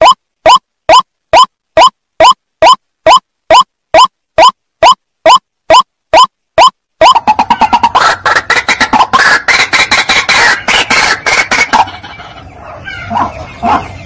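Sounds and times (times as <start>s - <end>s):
harsh repeated bird calls: 0.0s - 14.0s.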